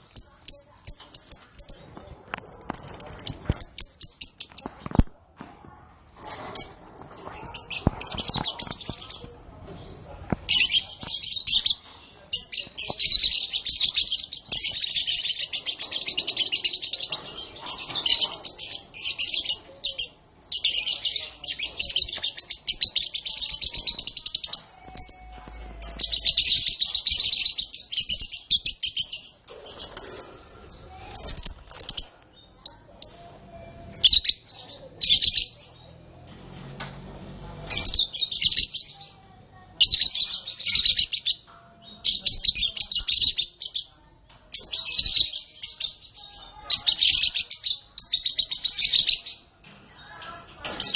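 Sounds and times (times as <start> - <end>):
canary singing trills: 37.6 - 50.9.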